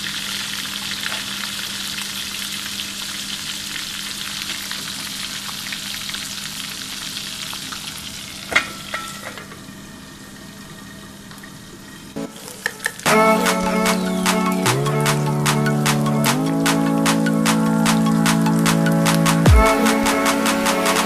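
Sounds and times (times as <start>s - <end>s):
deep-frying sizzle: 0.0s - 13.0s
background music: 12.2s - 21.0s.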